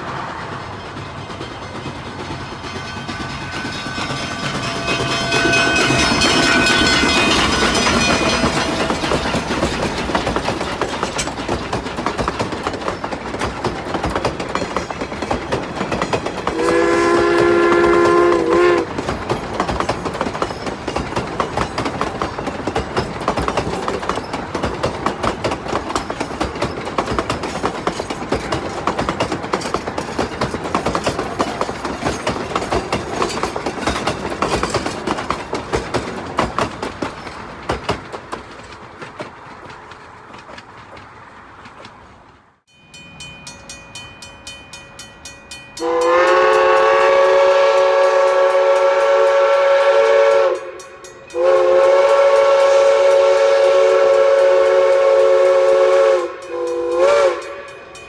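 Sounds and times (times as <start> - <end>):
steam locomotive exhaust: 0.0 - 42.3, 44.7 - 58.0
wheels clattering on rails: 0.0 - 58.0
steam whistle: 16.5 - 19.0, 45.8 - 58.0.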